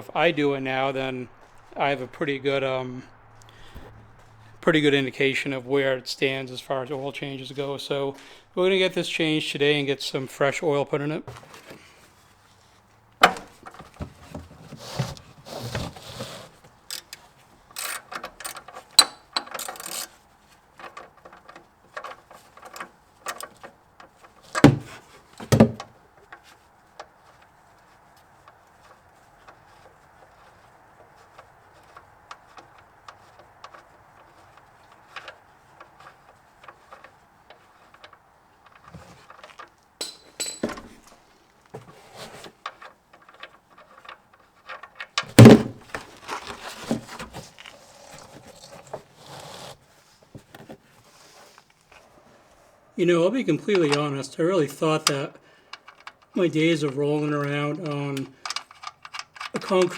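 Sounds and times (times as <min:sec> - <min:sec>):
heavy thumps: 0:24.4 - 0:26.0, 0:45.3 - 0:46.3
hard objects clinking and clattering: 0:38.7 - 0:41.1, 0:44.8 - 0:47.2.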